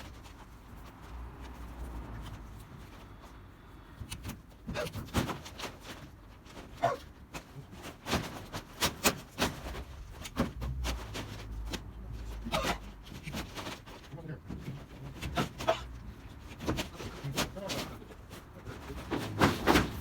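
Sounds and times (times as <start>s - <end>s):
metal roofing sheets clattering: 4.6s - 20.0s.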